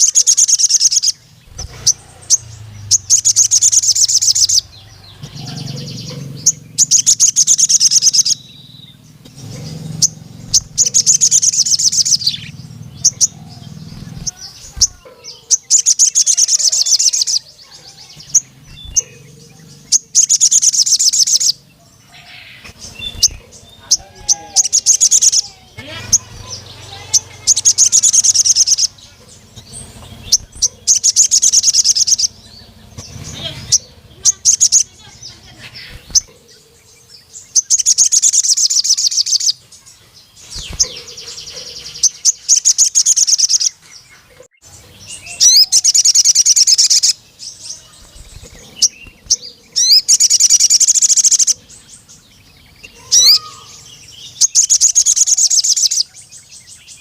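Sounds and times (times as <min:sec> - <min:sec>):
bird singing trilled phrases: 0:00.0 - 0:57.0
thin bird chirps: 0:00.0 - 0:57.0.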